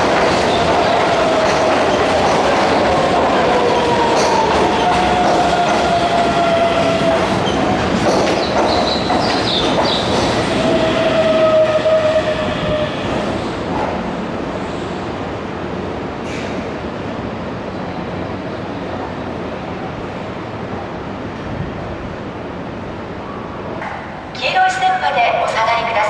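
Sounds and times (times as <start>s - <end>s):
train wheels clattering: 0.0s - 11.6s
high train whine: 0.0s - 26.0s.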